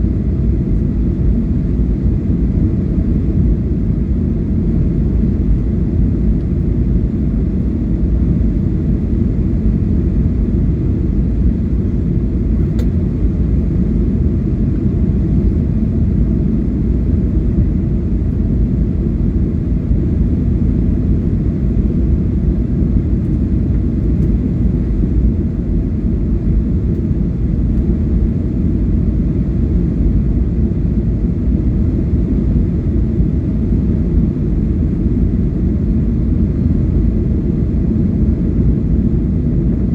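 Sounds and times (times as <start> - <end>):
airliner cabin engine rumble: 0.0 - 39.9
faint click: 12.6 - 13.0.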